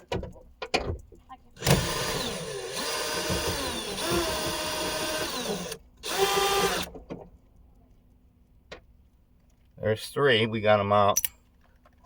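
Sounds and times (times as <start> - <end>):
power drill spinning: 1.6 - 6.9.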